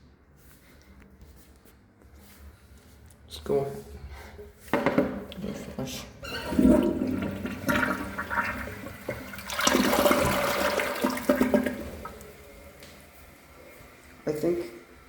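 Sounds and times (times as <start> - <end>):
toilet flushing: 5.0 - 15.0.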